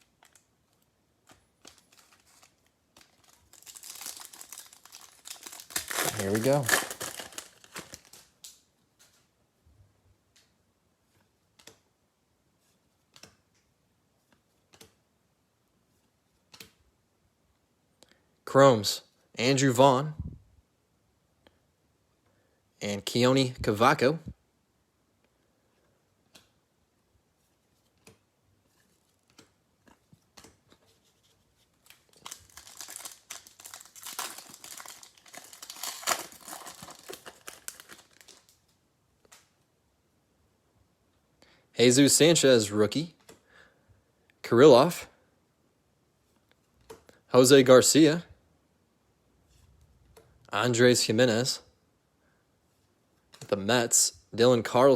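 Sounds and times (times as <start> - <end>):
wrapper crinkling and tearing: 1.3 - 8.6, 31.8 - 38.8.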